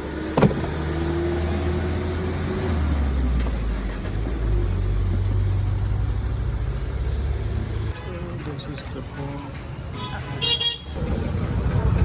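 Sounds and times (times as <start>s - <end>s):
car engine while driving: 0.0s - 7.9s
road noise: 0.0s - 12.0s.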